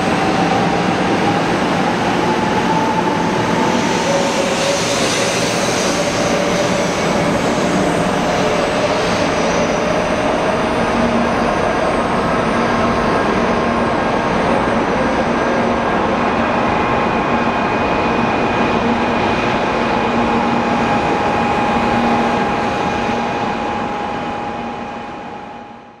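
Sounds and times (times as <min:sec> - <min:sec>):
train running and air rush: 0:00.0 - 0:26.0.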